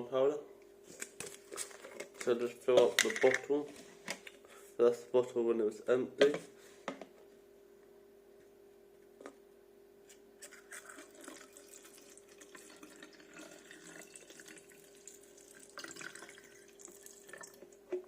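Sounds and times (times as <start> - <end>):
tap water running into bottle: 10.4 - 18.0.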